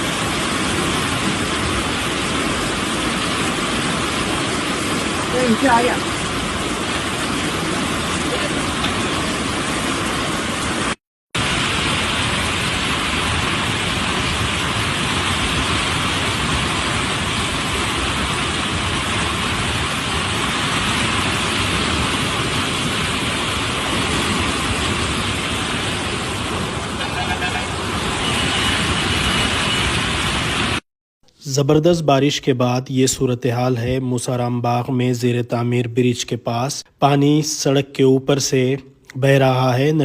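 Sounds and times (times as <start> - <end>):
floodwater rushing: 0.0 - 30.8
heavy rain: 0.0 - 30.8.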